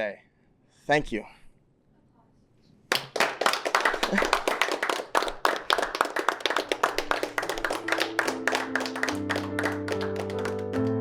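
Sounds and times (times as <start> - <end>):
audience applause: 2.9 - 11.0
sustained keyboard chords: 7.4 - 11.0.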